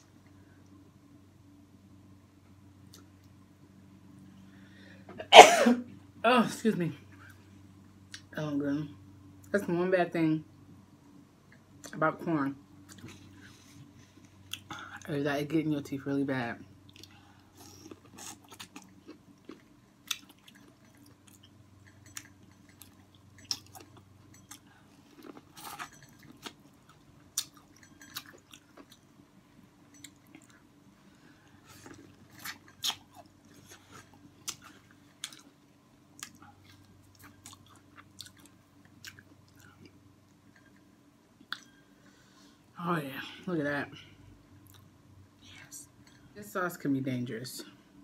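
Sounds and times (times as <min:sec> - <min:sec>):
person chewing corn with clicks: 0:16.8 - 0:29.1, 0:31.5 - 0:41.8.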